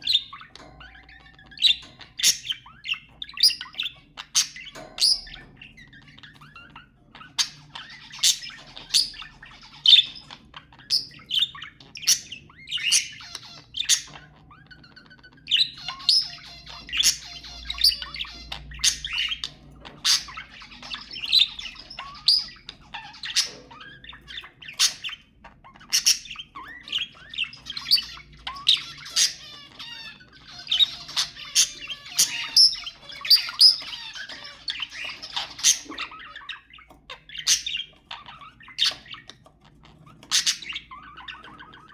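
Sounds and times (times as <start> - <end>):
budgerigars chattering: 0.0 - 41.9.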